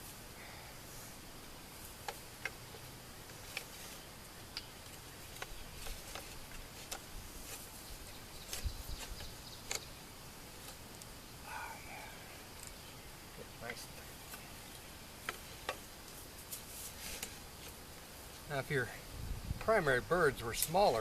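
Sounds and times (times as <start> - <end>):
wooden sticks clicking and knocking: 4.5 - 7.7.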